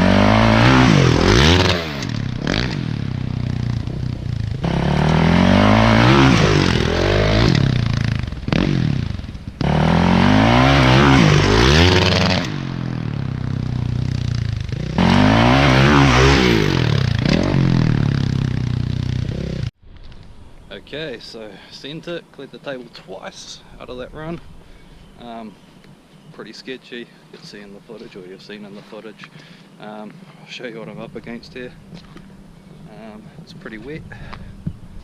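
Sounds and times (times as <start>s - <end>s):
motorbike engine revving: 0.0s - 19.8s.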